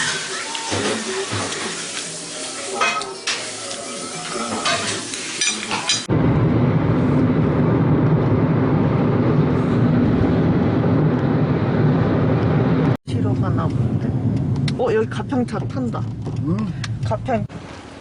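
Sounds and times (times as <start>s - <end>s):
running water: 0.0s - 6.0s
dishes clinking: 2.8s - 3.5s, 4.3s - 6.1s.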